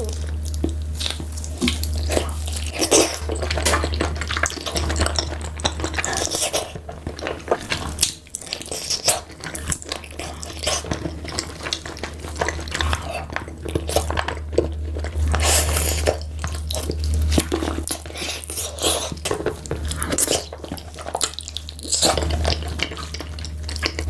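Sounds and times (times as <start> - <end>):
chewing with wet mouth smacks: 0.0 - 24.0
steady low hum: 0.0 - 24.0.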